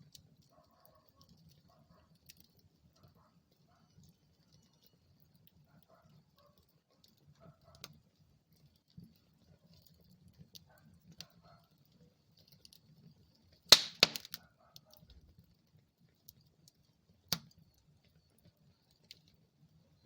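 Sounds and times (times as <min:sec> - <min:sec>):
fireplace fire crackling: 0:00.0 - 0:15.0
loud sharp pop of fire: 0:13.7 - 0:14.4.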